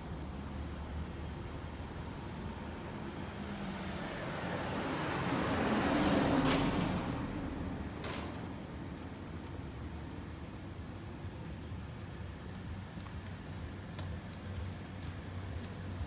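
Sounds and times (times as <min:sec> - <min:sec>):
street background noise: 0:00.0 - 0:16.0
vehicle passing by: 0:02.8 - 0:07.9.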